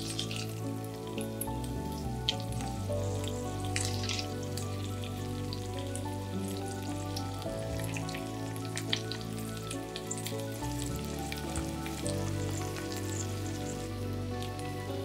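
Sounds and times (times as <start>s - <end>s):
soft background music: 0.0s - 15.0s
food sizzling in oil: 6.4s - 14.7s.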